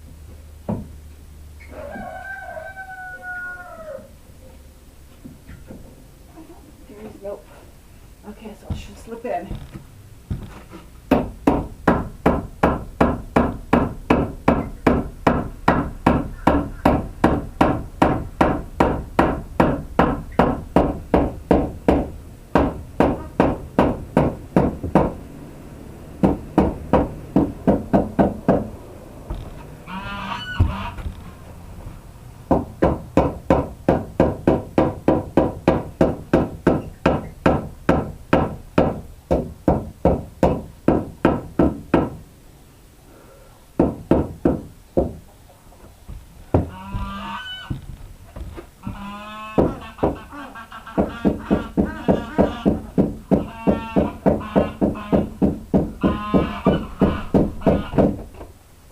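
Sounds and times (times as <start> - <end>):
hammer striking a board: 11.1 - 25.2, 32.5 - 42.2, 51.0 - 58.2
hen calling: 29.8 - 31.4, 46.6 - 47.8, 48.8 - 55.4, 56.0 - 58.2.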